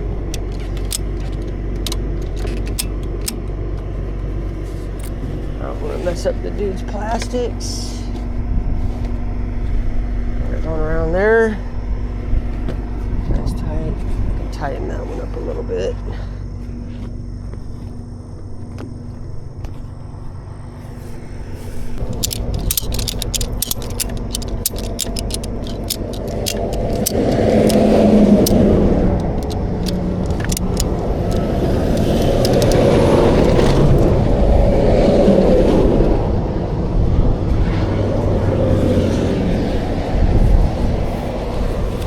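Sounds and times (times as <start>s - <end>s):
ratchet strap clicking: 0.0s - 3.6s, 22.0s - 34.1s
highway traffic rumble: 0.0s - 42.0s
vehicles passing: 0.0s - 42.0s.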